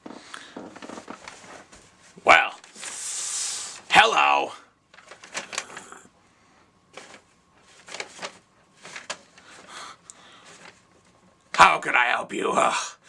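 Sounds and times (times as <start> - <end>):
paper bag rustling and crinkling: 0.0 - 3.2, 4.9 - 6.0, 6.9 - 11.6.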